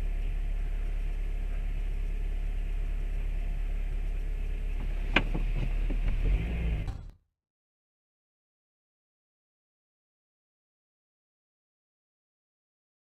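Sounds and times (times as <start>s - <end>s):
car driving rumble: 0.0s - 7.2s.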